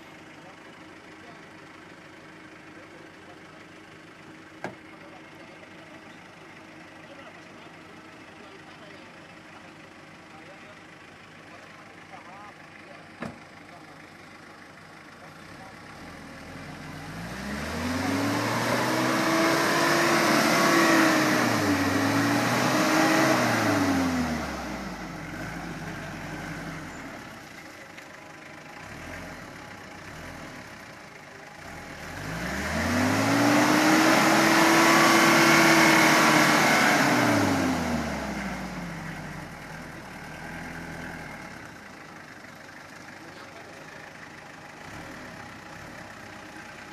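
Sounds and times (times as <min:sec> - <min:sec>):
pickup engine revving: 0:15.4 - 0:27.6, 0:28.7 - 0:42.1, 0:44.8 - 0:46.9.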